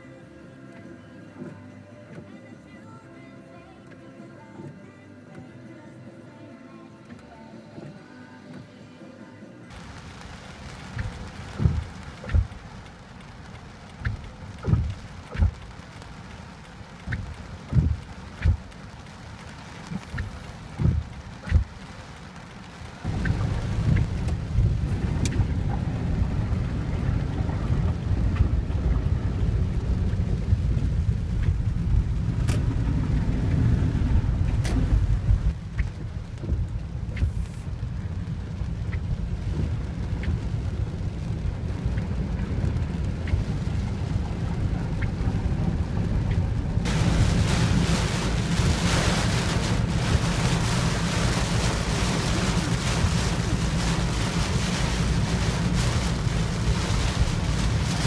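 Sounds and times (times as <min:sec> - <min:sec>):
rain falling: 0:09.7 - 0:58.0
faint ticks: 0:10.9 - 0:21.9, 0:25.2 - 0:25.5, 0:31.2 - 0:31.8
steady low rumble: 0:22.9 - 0:58.0.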